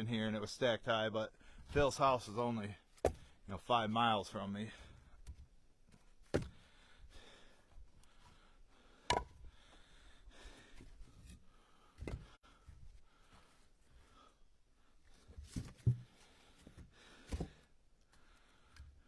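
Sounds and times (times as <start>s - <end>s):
firewood knocking on stack: 9.1s - 9.4s.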